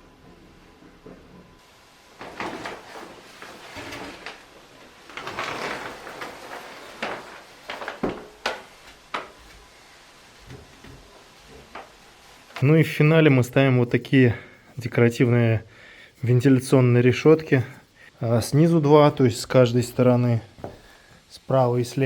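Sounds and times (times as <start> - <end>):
scraping and rustling: 1.5 - 13.0.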